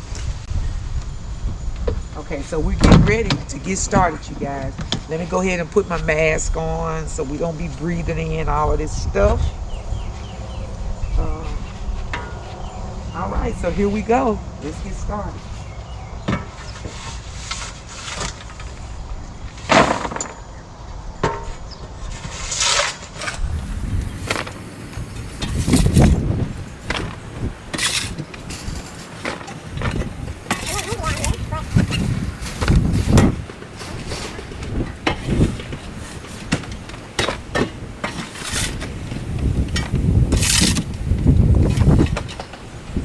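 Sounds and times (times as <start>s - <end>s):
shovel scraping and knocking: 16.4s - 18.8s, 22.2s - 42.7s.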